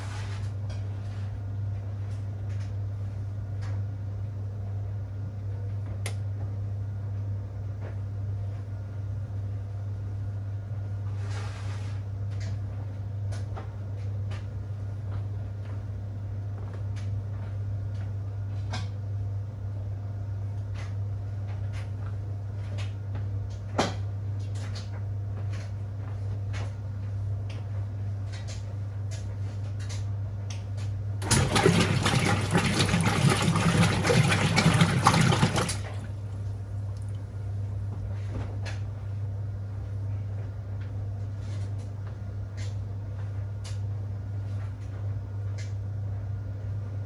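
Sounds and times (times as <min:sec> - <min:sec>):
washing machine hum: 0:00.0 - 0:47.0
water rushing into tub: 0:31.2 - 0:37.4.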